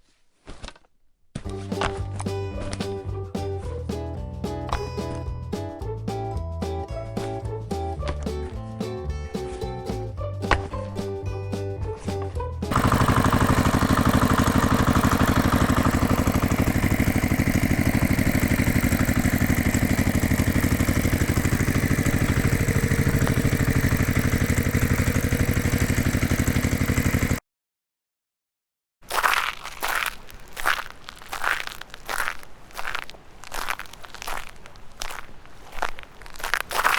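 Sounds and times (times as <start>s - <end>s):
music: 1.5s - 12.7s
engine chugging: 1.5s - 27.4s.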